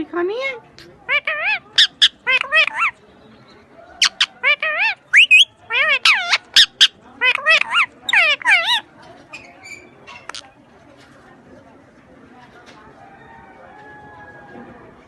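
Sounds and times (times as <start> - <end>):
parrot squawking: 1.1 - 3.0, 4.0 - 8.8.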